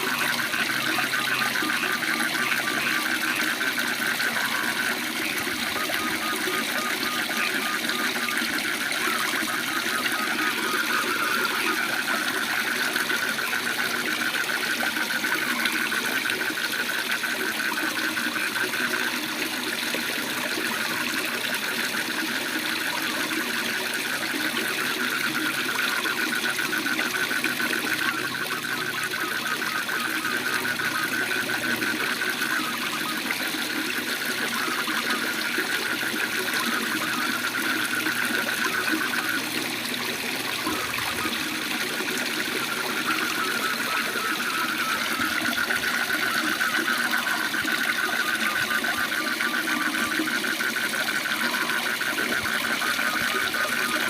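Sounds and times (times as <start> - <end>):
frogs trilling: 0.0 - 54.0.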